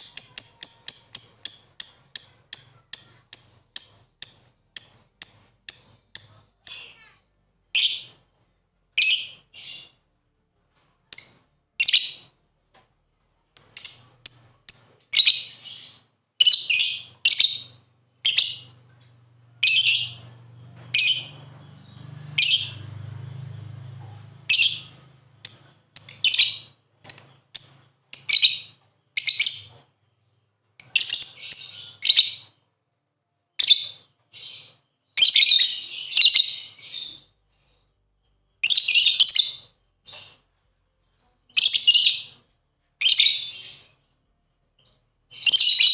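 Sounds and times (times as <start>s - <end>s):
lovebirds chirping: 0.0s - 8.3s, 13.6s - 23.8s, 24.4s - 32.6s, 44.8s - 45.9s
faint low hum: 0.0s - 33.6s.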